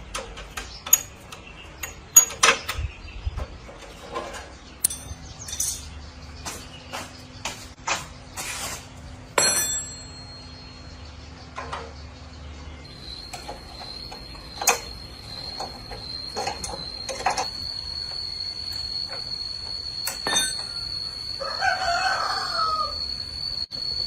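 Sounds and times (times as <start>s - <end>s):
ringing metal clank: 4.8s - 6.0s, 9.4s - 11.1s, 13.2s - 21.3s.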